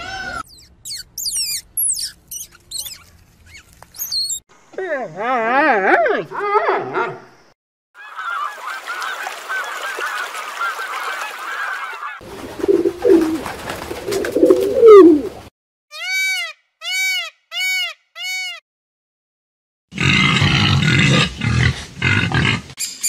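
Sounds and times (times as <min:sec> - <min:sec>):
pigeons cooing: 0:12.3 - 0:15.4.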